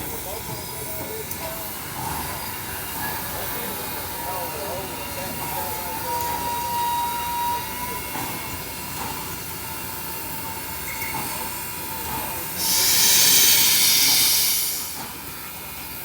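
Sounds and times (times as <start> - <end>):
loud steam hiss: 11.1 - 16.0.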